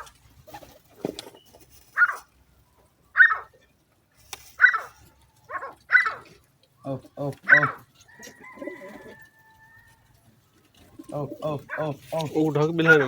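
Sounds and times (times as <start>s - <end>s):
loud animal calls: 3.1s - 3.6s, 4.6s - 6.4s, 7.4s - 7.9s.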